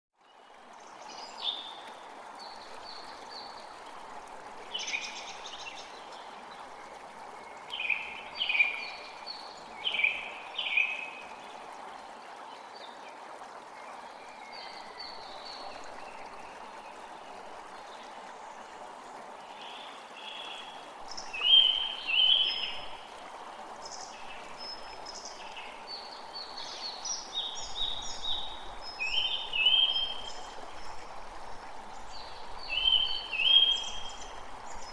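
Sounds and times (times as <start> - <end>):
flowing stream: 0.2 - 34.9
songbirds singing: 19.5 - 23.1, 32.0 - 34.9.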